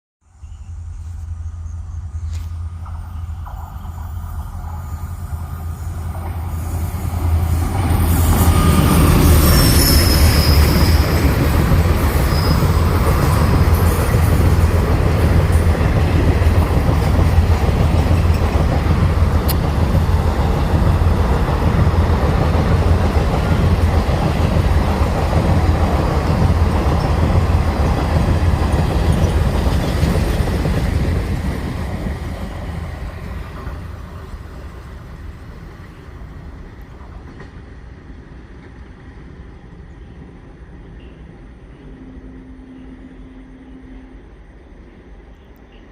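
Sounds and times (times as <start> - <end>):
train wheels rumbling on rails: 0.6 - 45.9
high wheel squeal: 3.9 - 11.4, 12.1 - 13.0.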